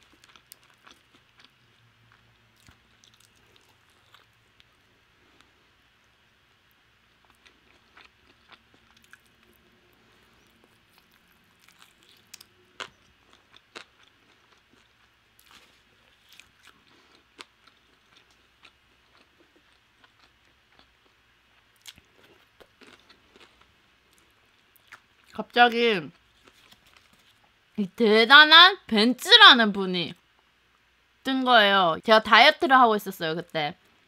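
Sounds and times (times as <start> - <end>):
chewing crispy food: 0.0 - 25.4, 26.1 - 27.7.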